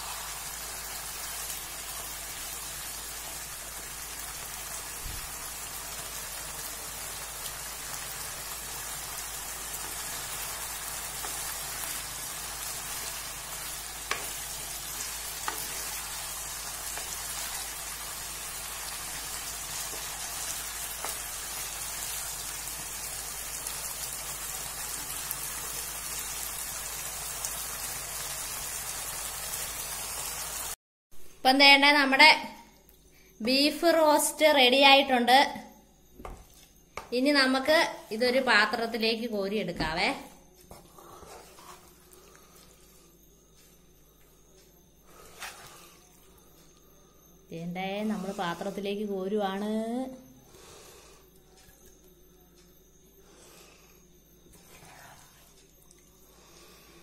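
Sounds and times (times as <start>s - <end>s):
meat and gravy sizzling: 0.0s - 30.8s.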